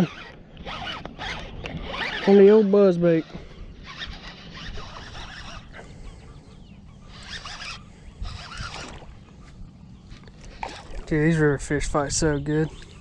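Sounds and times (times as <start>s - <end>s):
fishing reel cranking whir: 0.0s - 6.2s, 6.8s - 9.3s, 10.1s - 11.4s.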